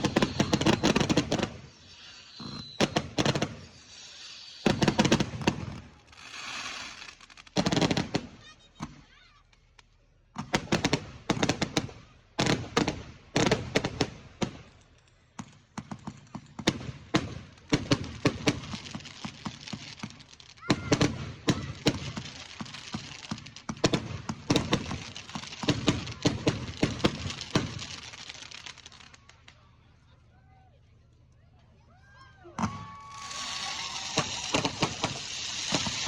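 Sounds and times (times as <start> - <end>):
hissing crackle: 0.0 - 5.2, 6.0 - 7.6, 24.3 - 29.6, 33.1 - 36.0
fireworks banging and crackling: 0.0 - 30.2, 32.5 - 36.0.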